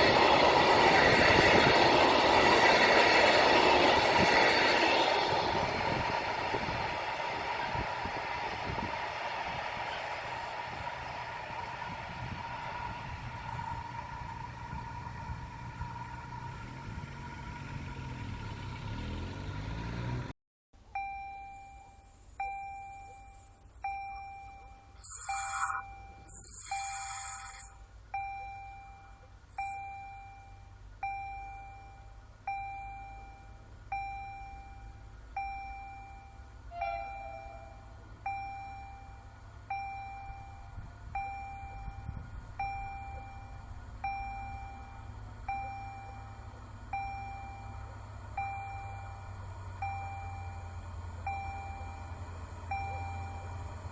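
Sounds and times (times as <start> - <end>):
railcar engine running: 0.0 - 18.2, 34.8 - 53.9
level crossing warning bell: 20.9 - 53.9
high-pitched horn blasts: 23.9 - 27.9.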